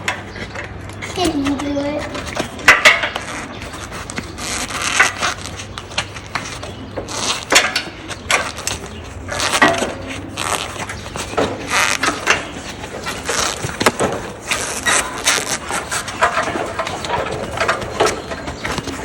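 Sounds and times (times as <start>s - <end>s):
rustling: 0.0s - 19.0s.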